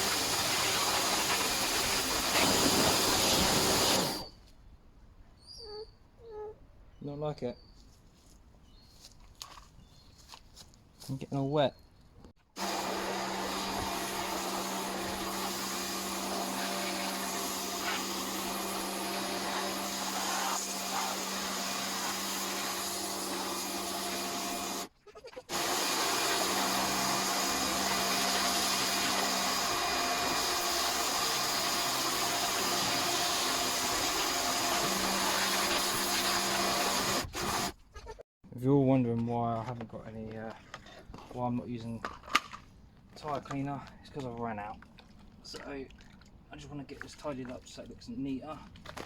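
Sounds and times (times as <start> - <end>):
pressure washer motor whine: 0.0 - 4.3, 12.6 - 24.9, 25.5 - 37.7
water spray hissing: 0.0 - 4.3, 12.6 - 24.9, 25.5 - 37.8.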